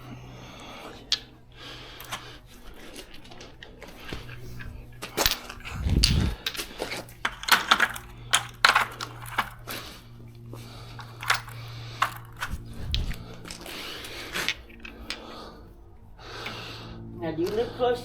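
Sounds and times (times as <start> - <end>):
steady low hum: 0.0 - 18.0
metal tools clinking and knocking: 2.0 - 9.9, 10.9 - 15.7.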